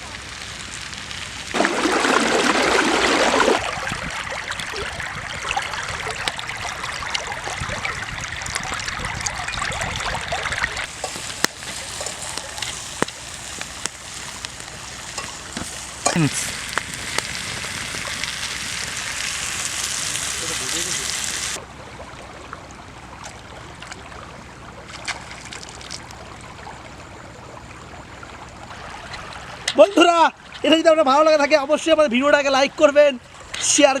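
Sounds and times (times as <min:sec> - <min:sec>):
food sizzling in a hot pan: 0:10.8 - 0:21.6.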